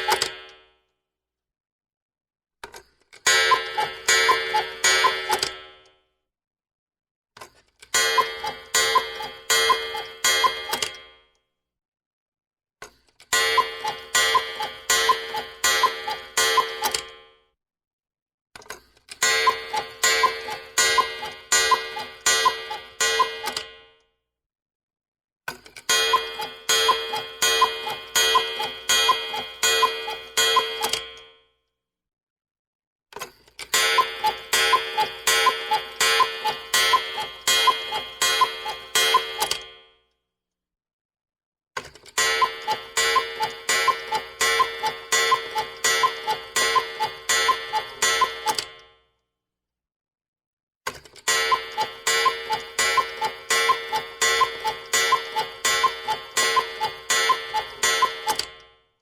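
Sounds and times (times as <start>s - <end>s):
cuckoo clock ringing strokes: 0.0s - 0.4s, 3.3s - 5.6s, 8.0s - 11.0s, 13.3s - 17.2s, 19.2s - 23.8s, 25.9s - 31.2s, 33.7s - 39.7s, 42.1s - 48.8s, 51.2s - 58.6s.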